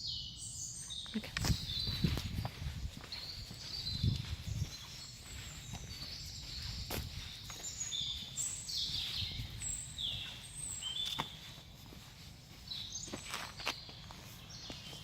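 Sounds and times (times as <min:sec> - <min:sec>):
birds whistling: 0:00.0 - 0:11.7.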